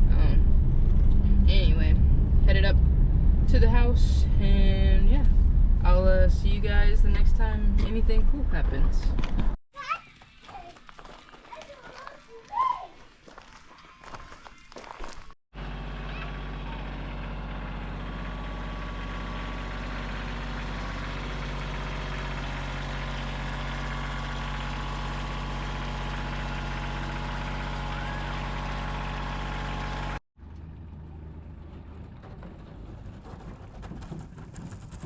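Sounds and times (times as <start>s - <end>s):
outdoor background: 0.0s - 35.0s
heavy engine humming: 15.6s - 35.0s.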